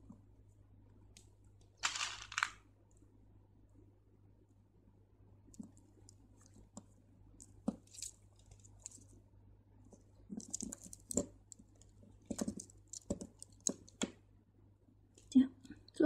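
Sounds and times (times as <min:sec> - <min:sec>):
bead line rustling: 0:01.8 - 0:02.6, 0:05.6 - 0:09.2, 0:09.9 - 0:14.1
beads clicking: 0:01.8 - 0:02.6, 0:07.4 - 0:09.1, 0:10.3 - 0:14.1.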